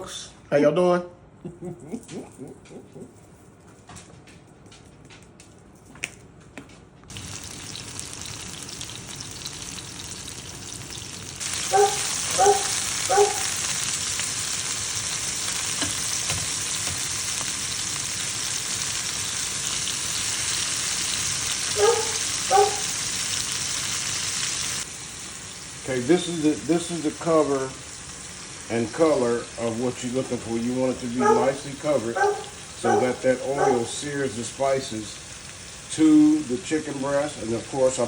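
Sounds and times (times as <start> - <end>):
chicken frying in hot oil: 7.1 - 38.0.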